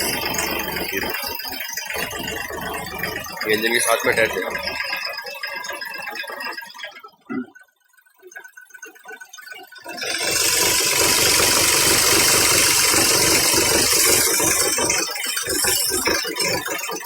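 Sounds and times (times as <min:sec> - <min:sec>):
car engine running: 0:00.0 - 0:01.4, 0:10.0 - 0:16.1.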